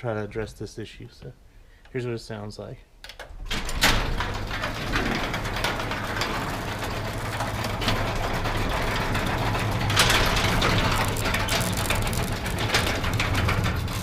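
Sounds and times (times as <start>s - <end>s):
garage door rattling clatter: 3.2s - 14.0s
garage door opener motor hum: 3.3s - 14.0s.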